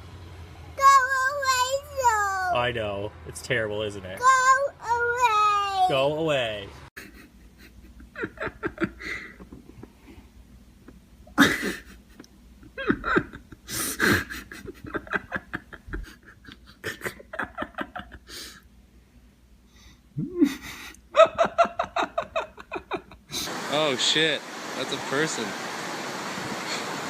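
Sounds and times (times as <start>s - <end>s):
person laughing: 7.0s - 10.0s, 11.3s - 18.6s, 20.2s - 23.5s
breaths and gasps: 19.7s - 21.0s.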